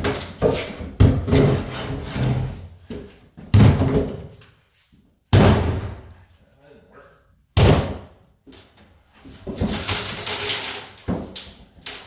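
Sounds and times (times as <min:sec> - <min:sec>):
wood scraping and rattling: 0:00.0 - 0:02.8.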